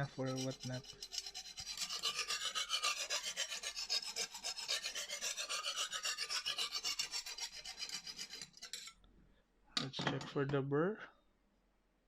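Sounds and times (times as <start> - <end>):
sharpening stone scraping knife: 0.0 - 9.0.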